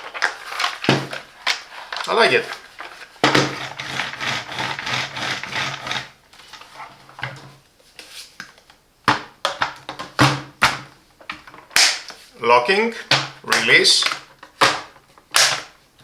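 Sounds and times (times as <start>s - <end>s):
plastic parts rubbing and rattling: 0.0s - 7.5s.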